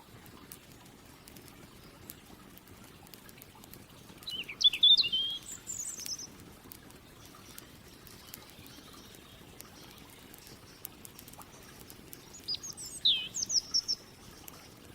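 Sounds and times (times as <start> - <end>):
campfire crackling: 0.0 - 14.9
songbird chirping: 4.2 - 6.4, 7.2 - 14.8.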